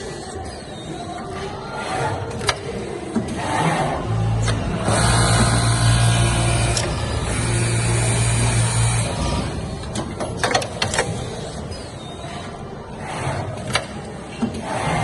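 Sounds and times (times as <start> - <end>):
sewing machine motor hum: 4.1 - 9.8.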